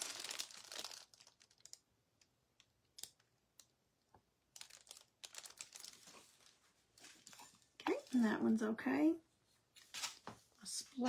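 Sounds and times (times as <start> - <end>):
objects rustling on a table: 4.7 - 8.2, 9.7 - 10.6.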